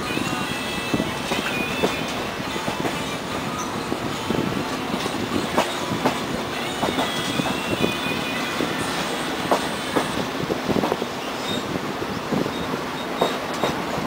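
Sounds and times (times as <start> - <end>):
train rumble: 0.0 - 14.0
train wheels clicking over rail joints: 4.3 - 7.8, 8.5 - 14.0
high squeal from wheels: 11.2 - 11.8, 12.4 - 13.7.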